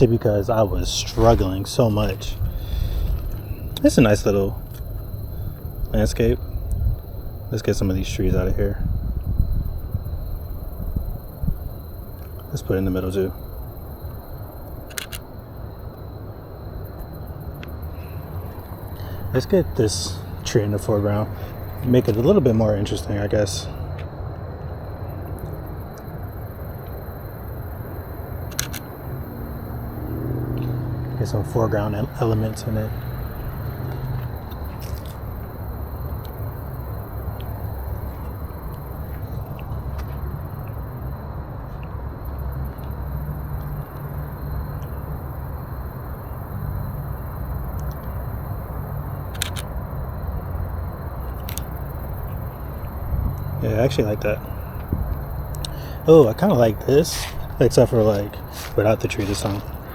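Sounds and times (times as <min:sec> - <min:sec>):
low outdoor rumble: 0:00.0 - 0:59.9
sharp clicks: 0:14.9 - 0:15.3, 0:28.5 - 0:28.9, 0:49.3 - 0:49.8.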